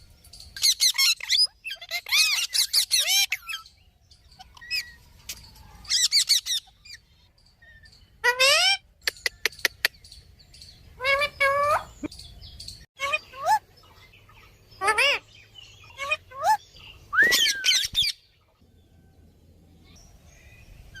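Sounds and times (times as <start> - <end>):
parrot calling: 0.6 - 3.7, 5.9 - 7.0, 8.2 - 9.9, 11.0 - 12.1, 14.8 - 15.2, 15.8 - 16.6.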